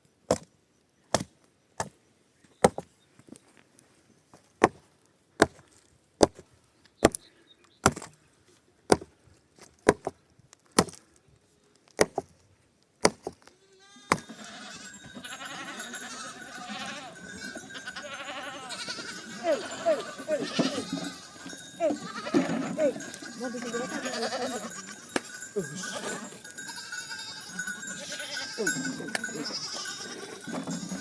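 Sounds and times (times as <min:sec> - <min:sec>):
sheep and goats bleating: 0:13.5 - 0:31.0.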